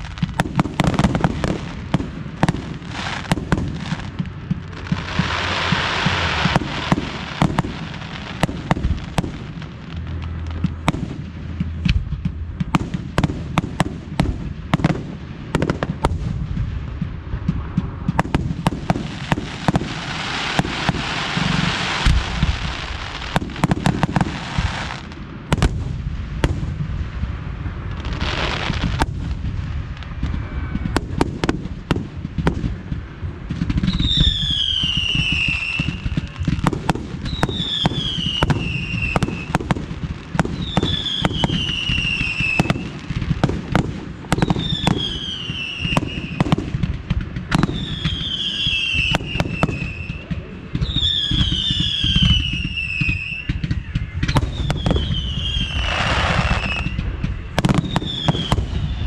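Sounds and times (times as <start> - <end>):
firework bangs and pops: 0.0 - 59.0
falling firework whistle: 28.0 - 32.0, 33.6 - 46.8, 47.5 - 59.0.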